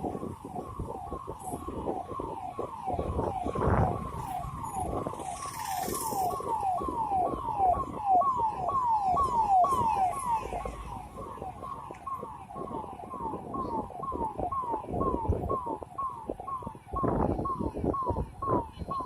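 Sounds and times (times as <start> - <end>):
electronic siren falling tone: 1.0 - 19.0.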